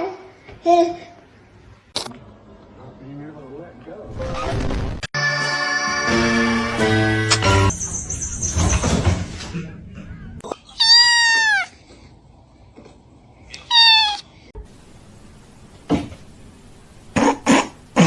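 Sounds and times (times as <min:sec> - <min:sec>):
cat meowing: 0:10.7 - 0:11.8, 0:13.6 - 0:14.3.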